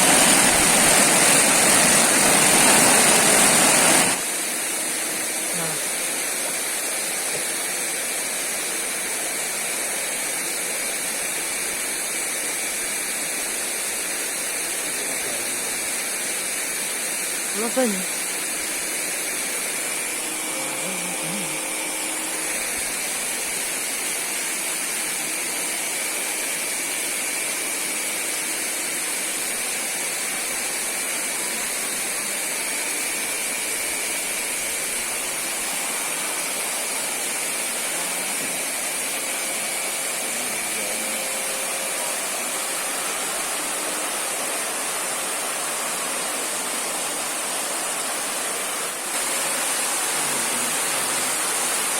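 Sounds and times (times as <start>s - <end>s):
waterfall and river rushing: 0.0s - 4.2s, 42.0s - 51.9s
thin steady high tone: 13.6s - 26.6s.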